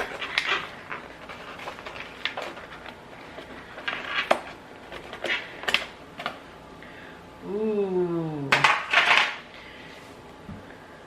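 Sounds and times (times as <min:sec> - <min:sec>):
food packaging crinkling and clicking: 0:00.0 - 0:06.5.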